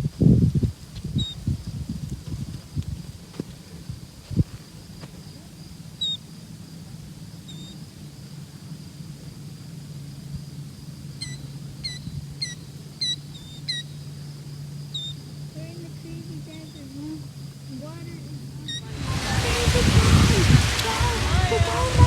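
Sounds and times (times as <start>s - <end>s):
sandpipers peeping: 11.2s - 22.0s
low rumble: 18.8s - 22.0s.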